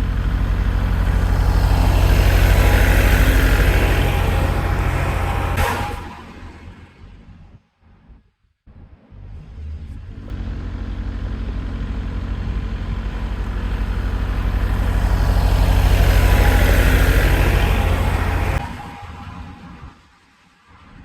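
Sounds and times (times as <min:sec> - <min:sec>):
heavy equipment engine pulsing: 0:00.0 - 0:06.1, 0:10.1 - 0:18.8.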